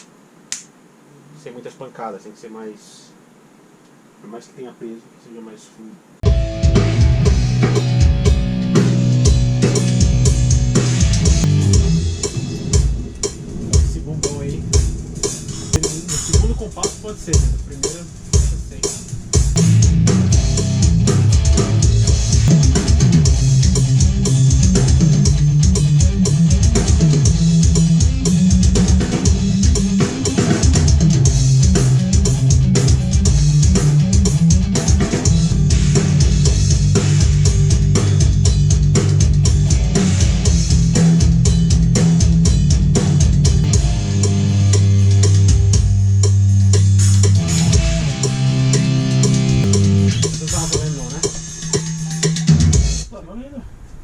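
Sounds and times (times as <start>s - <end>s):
heavy band music: 6.2s - 53.1s
fast kick drum: 15.8s - 44.6s.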